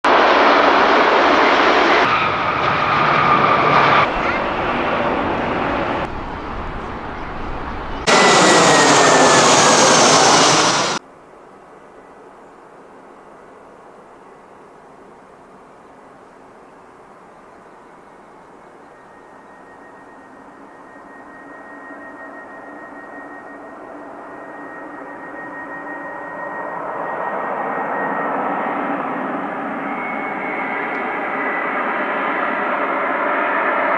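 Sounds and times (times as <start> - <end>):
jet engines whining: 0.1 - 11.0, 19.6 - 33.9
thin high whine: 1.9 - 11.0.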